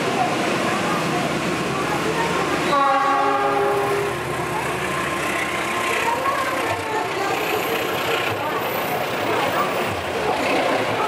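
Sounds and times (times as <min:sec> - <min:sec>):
train wheels rumbling and rattling: 0:00.0 - 0:11.0
locomotive horn blast: 0:02.7 - 0:04.2.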